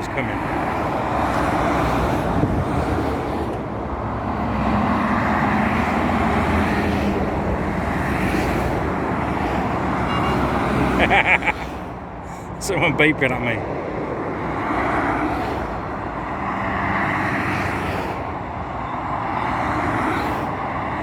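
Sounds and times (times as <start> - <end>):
road traffic tyre and engine noise: 0.0 - 21.0
heavy engine low drone: 15.4 - 21.0.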